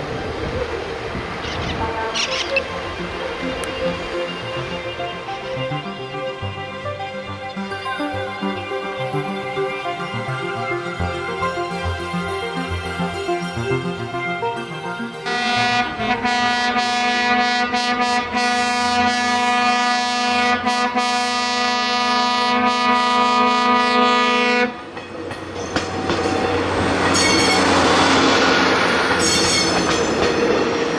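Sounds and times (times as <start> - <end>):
train rumble and wheel clatter: 0.0 - 30.9
train horn blast: 1.7 - 2.5, 15.0 - 24.9, 26.9 - 28.3.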